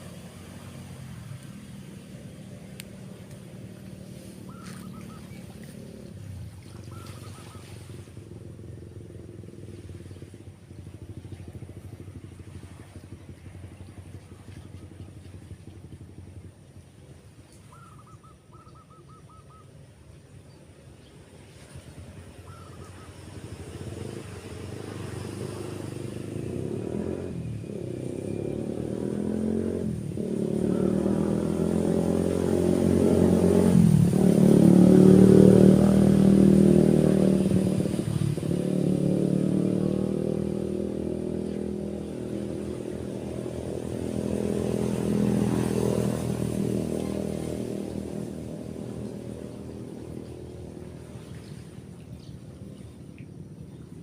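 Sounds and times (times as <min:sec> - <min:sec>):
motorcycle engine running: 0:00.0 - 0:17.3, 0:23.3 - 0:51.2
bird chirps: 0:04.2 - 0:05.6, 0:06.7 - 0:07.8, 0:17.6 - 0:19.8.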